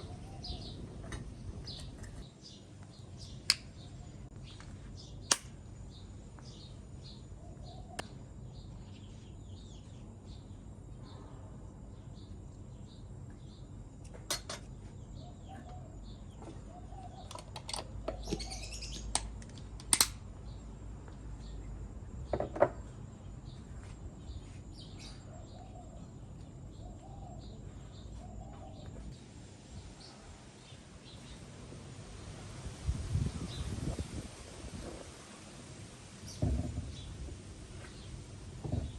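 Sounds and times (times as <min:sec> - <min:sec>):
birds chirping: 0:00.0 - 0:11.3, 0:11.9 - 0:19.6, 0:21.4 - 0:38.9.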